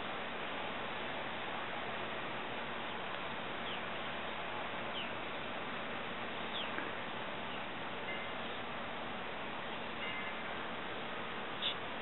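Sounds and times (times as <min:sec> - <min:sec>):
steady outdoor hiss: 0:00.0 - 0:12.0
falling bird calls: 0:06.5 - 0:07.7, 0:11.6 - 0:11.9.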